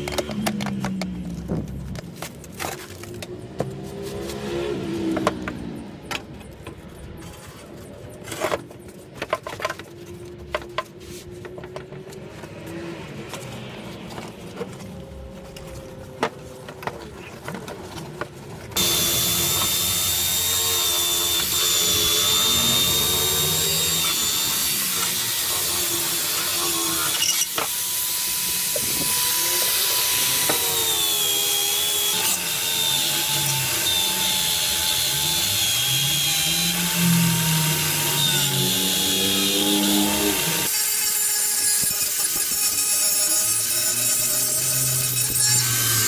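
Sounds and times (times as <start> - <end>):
power tool whining: 18.8 - 46.0.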